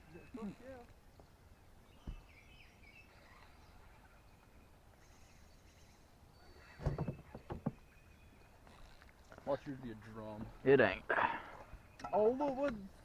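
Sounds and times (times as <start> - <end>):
faint bird chirps: 0.0 - 9.4.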